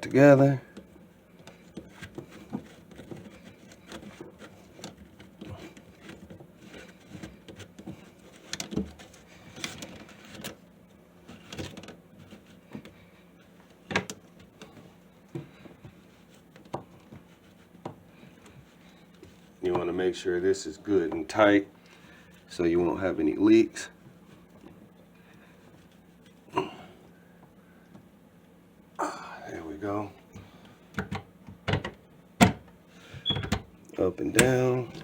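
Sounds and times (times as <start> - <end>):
small clicks and knocks of drain parts: 0.7 - 10.6, 30.4 - 32.6.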